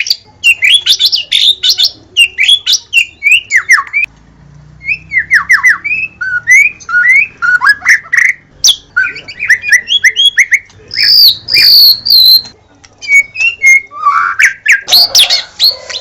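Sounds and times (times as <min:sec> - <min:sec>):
bird singing whistled notes: 0:04.8 - 0:16.0.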